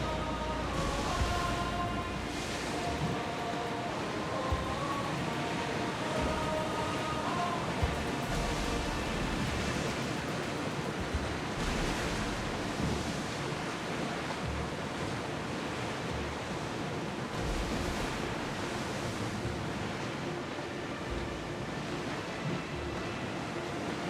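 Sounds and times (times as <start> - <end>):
low rumbles: 0.0 - 3.4, 7.8 - 13.6
sea waves rushing: 0.0 - 24.0.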